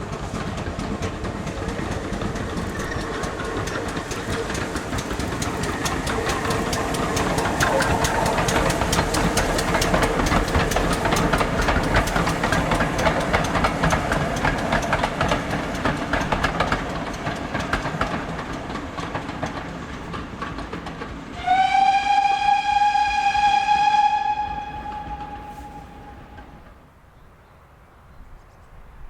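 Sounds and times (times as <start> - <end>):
steam train running past: 0.0 - 27.8
long steam whistle blast: 21.4 - 26.7.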